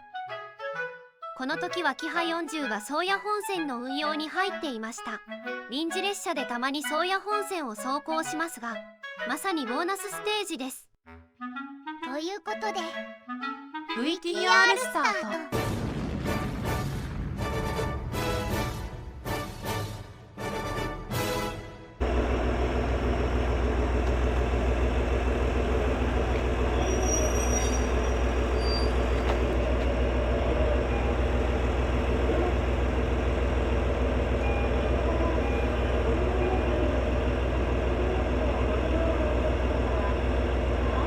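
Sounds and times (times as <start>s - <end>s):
diesel engine droning: 22.0s - 41.0s
train wheels on rails: 22.0s - 41.0s.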